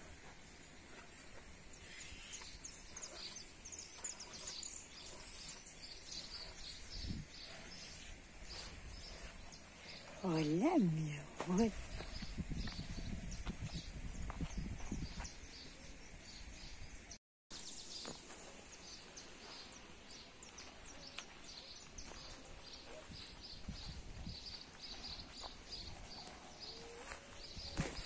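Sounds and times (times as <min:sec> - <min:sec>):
bird chirping: 0:00.1 - 0:13.9.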